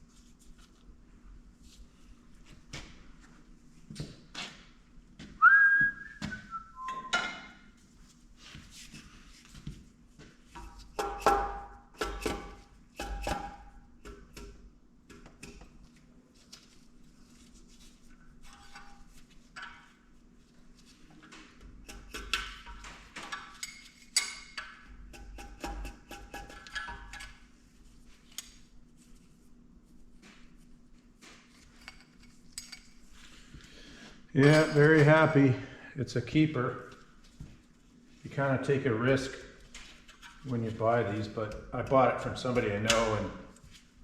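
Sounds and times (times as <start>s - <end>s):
whistling falling notes: 5.4s - 7.2s.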